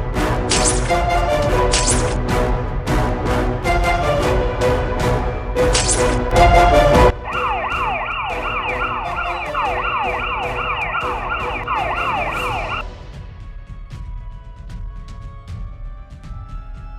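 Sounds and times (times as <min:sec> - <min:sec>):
background music with drum beat: 0:00.0 - 0:16.9
police siren wailing: 0:06.3 - 0:12.8.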